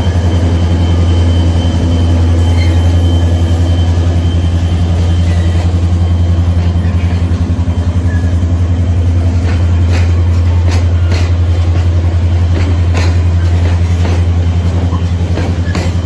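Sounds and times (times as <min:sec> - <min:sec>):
diesel locomotive throb: 0:00.0 - 0:16.0
wagon wheels clicking over rail joints: 0:09.4 - 0:16.0.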